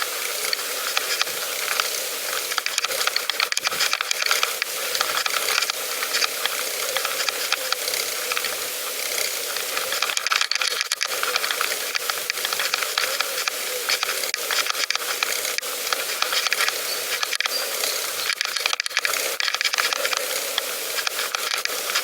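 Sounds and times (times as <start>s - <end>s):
bicycle tyre hiss: 0.0s - 10.2s, 11.0s - 18.4s
bicycle clicks and rattles: 0.0s - 22.0s.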